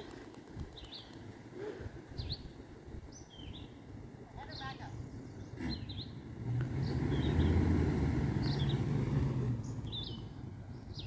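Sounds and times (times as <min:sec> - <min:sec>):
birds chirping: 0:00.7 - 0:01.3, 0:02.0 - 0:11.0
vehicle engine revving: 0:05.4 - 0:11.0.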